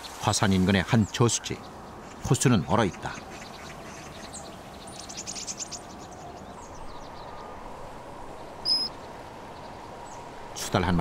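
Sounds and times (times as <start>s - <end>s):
birds chirping: 0.0s - 11.0s
high clear bird whistle: 8.6s - 9.0s.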